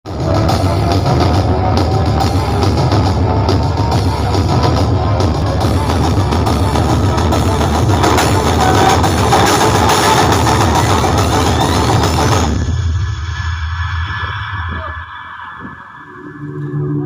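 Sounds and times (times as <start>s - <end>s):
loud bass-heavy music: 0.0s - 17.0s.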